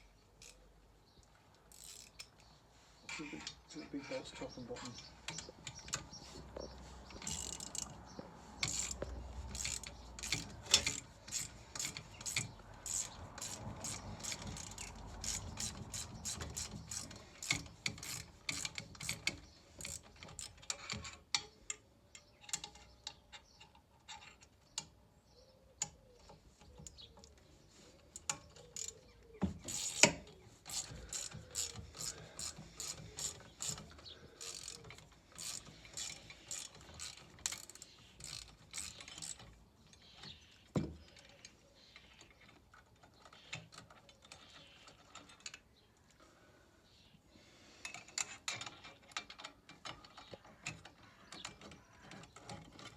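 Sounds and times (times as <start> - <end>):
ratchet spanner clicking: 1.7 - 2.3, 7.2 - 7.9, 8.6 - 21.5, 29.7 - 39.5.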